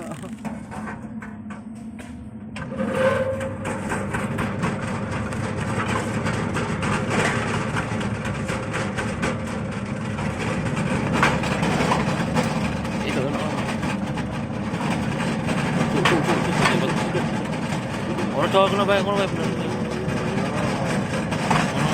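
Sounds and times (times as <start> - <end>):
machine hum: 0.0 - 21.9.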